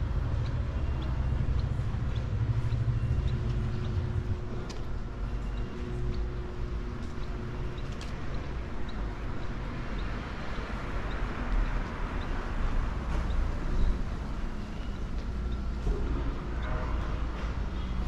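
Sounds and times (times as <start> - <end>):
traffic noise: 0.0 - 18.0.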